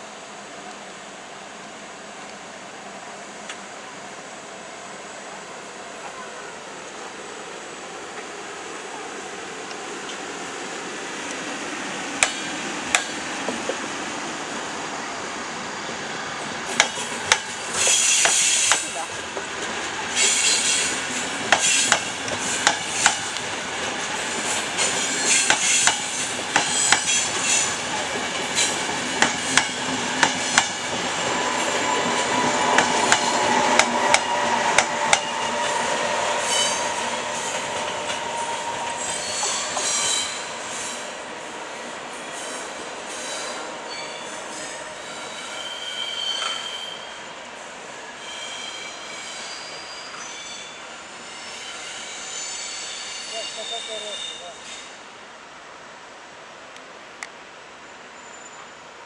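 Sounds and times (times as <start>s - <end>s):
train wheels clicking over rail joints: 12.2s - 13.9s, 16.7s - 35.8s
train wheel squeal: 16.7s - 19.2s, 20.1s - 41.2s, 42.2s - 47.3s, 47.9s - 55.0s, 57.8s - 59.0s.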